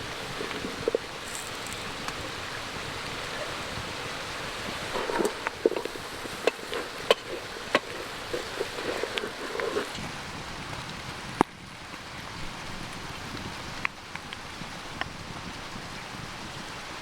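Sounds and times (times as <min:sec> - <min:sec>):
campfire crackling and popping: 0:00.0 - 0:10.1
creek rushing: 0:00.0 - 0:10.3.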